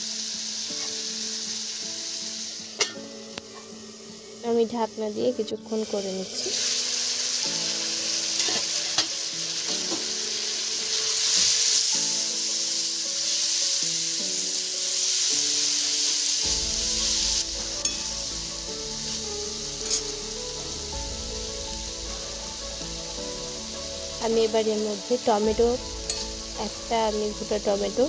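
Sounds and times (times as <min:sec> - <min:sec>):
vegetables sizzling in hot oil: 0:00.0 - 0:28.0
metal spatula stirring: 0:08.4 - 0:09.1, 0:17.8 - 0:20.8, 0:25.9 - 0:27.6
spatula clinking on pan: 0:26.1 - 0:26.4.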